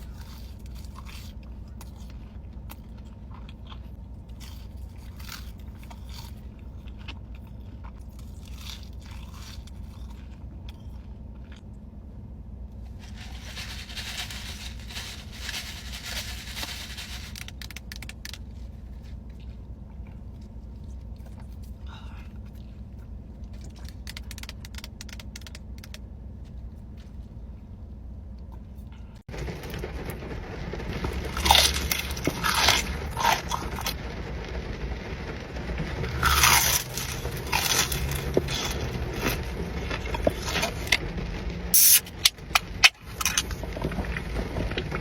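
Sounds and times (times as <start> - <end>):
crunching bites and chewing: 0.0 - 11.8, 15.4 - 27.2, 30.9 - 34.0, 35.9 - 41.0, 41.8 - 45.0
steady low hum: 0.0 - 45.0.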